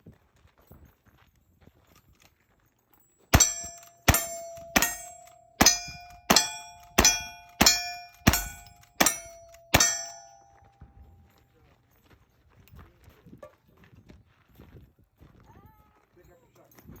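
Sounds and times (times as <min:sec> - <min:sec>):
steel target ringing: 0:03.3 - 0:10.8
gunshots: 0:03.4 - 0:10.3.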